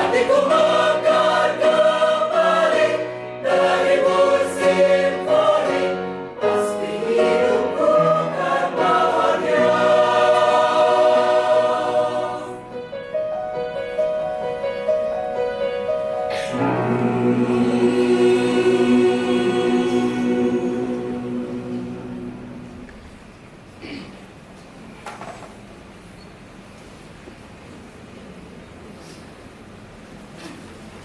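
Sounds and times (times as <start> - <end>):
mixed choir singing: 0.0 - 12.8, 16.4 - 23.2.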